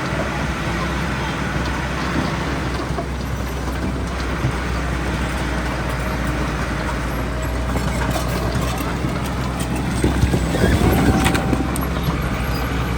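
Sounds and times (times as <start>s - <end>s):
diesel machinery engine hum: 0.0s - 12.9s
mechanical noise: 7.7s - 12.9s.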